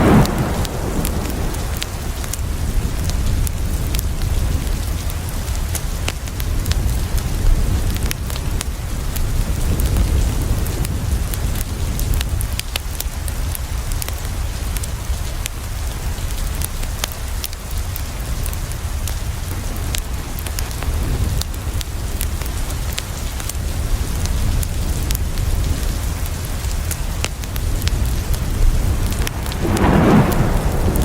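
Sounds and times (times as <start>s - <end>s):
crackling wood fire: 0.0s - 31.0s
rain on a window: 0.0s - 31.0s
deep low rumble: 27.5s - 31.0s.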